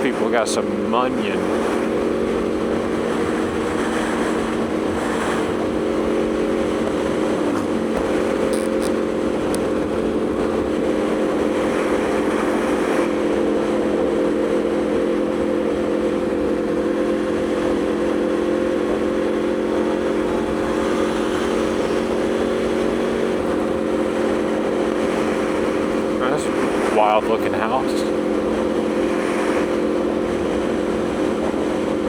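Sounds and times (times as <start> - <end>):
motorcycle engine cruising: 0.0 - 32.0
wind noise: 1.3 - 14.2.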